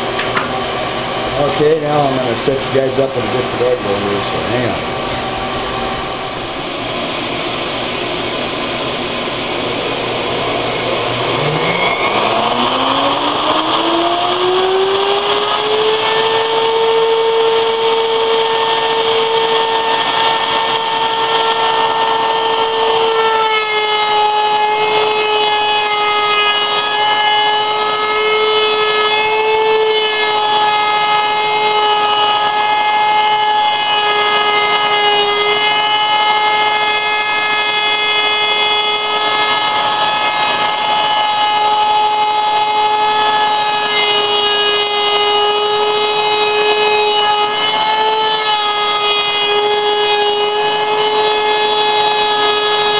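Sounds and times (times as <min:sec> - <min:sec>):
router whining: 0:00.0 - 0:52.9.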